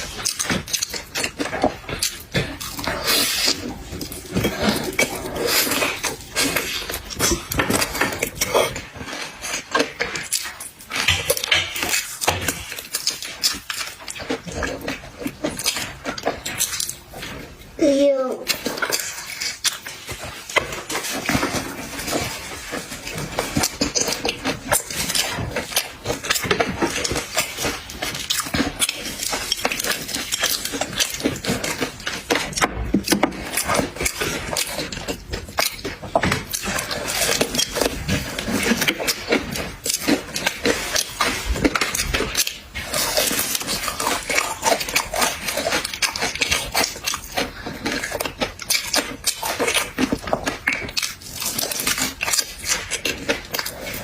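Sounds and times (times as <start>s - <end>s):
person chewing: 0.0s - 54.0s.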